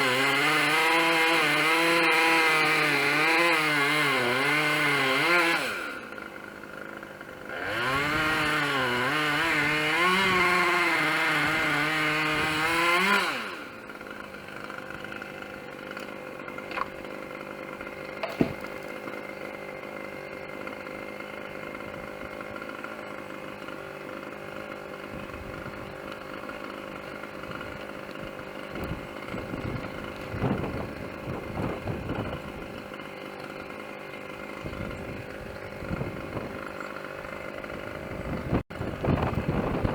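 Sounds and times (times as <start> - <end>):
chainsaw revving and idling: 0.0 - 39.9
light knocks and thumps: 18.2 - 18.8.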